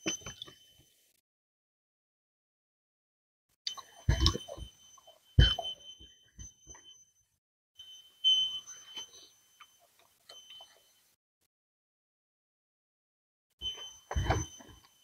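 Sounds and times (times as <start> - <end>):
thin high whine: 7.8 - 11.2, 13.6 - 15.0.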